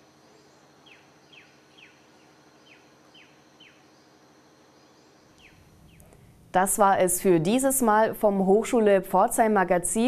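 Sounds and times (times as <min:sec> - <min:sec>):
bird chirping: 0:00.0 - 0:06.3
insect hum: 0:00.0 - 0:10.0.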